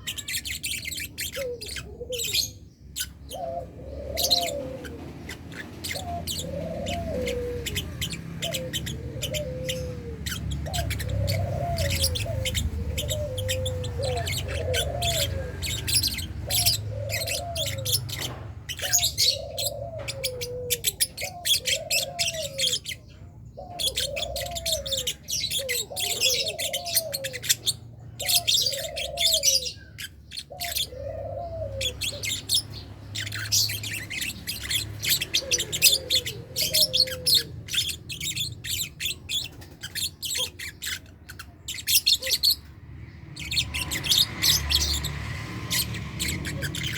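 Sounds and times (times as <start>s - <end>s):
lovebirds chirping: 0.0s - 46.9s
low cooing call: 3.3s - 23.0s, 23.6s - 27.6s, 28.2s - 29.8s, 30.5s - 32.6s, 35.0s - 38.3s.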